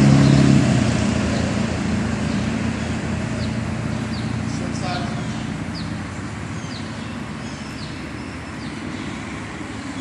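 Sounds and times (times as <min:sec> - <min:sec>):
bird chirping: 0:02.2 - 0:10.0.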